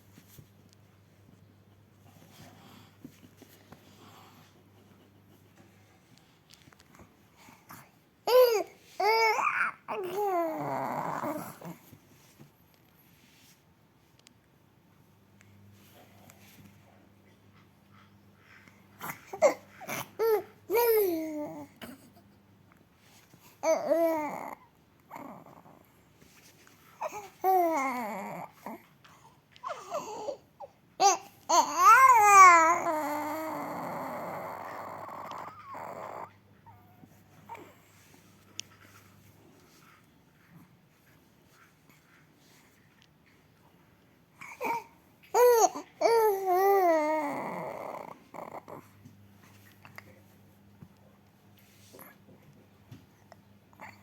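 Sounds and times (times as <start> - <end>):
baby cooing: 8.3 - 11.8, 19.0 - 21.8, 23.6 - 25.7, 27.0 - 28.8, 31.0 - 36.3, 44.4 - 48.8.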